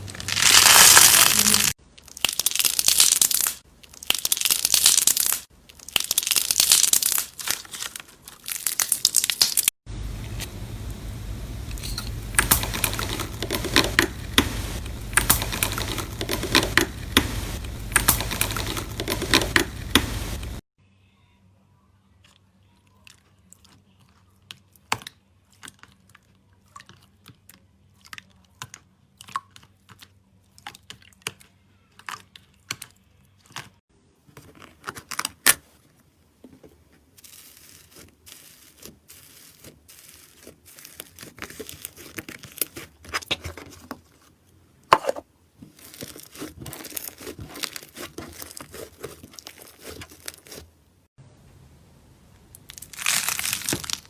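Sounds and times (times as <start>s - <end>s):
slime popping and crackling: 0.0s - 9.7s, 12.2s - 20.6s, 45.8s - 50.6s, 52.6s - 54.0s.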